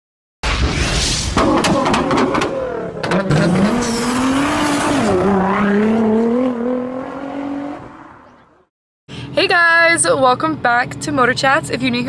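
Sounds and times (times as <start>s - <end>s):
sharp cracks: 0.4s - 4.8s
car engine revving: 1.4s - 8.7s.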